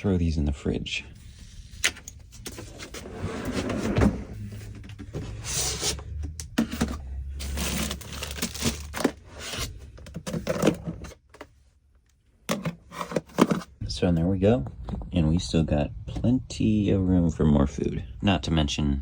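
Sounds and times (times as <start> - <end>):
plastic containers knocking and scraping: 1.8 - 11.5, 12.4 - 16.4.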